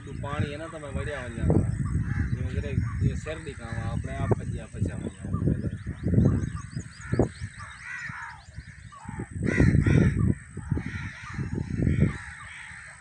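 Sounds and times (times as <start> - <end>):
crows cawing: 0.5 - 4.2, 5.7 - 13.0.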